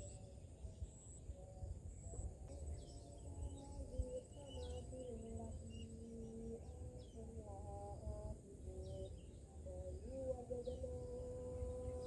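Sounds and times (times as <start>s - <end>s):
birds chirping: 0.0s - 7.5s
insect trill: 0.0s - 12.0s.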